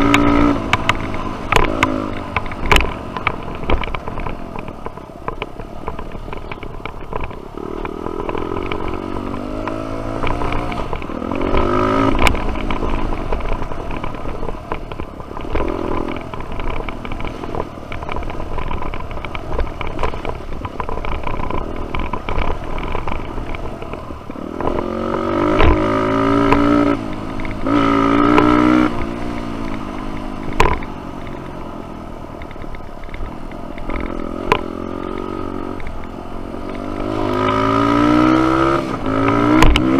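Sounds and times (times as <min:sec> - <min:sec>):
dirt bike engine revving: 0:00.0 - 0:02.9, 0:07.6 - 0:13.8, 0:24.3 - 0:30.0, 0:36.6 - 0:39.9.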